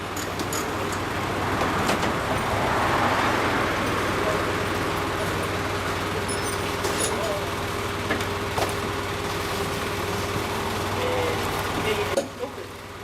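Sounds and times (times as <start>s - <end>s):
vehicle passing: 1.1s - 6.2s.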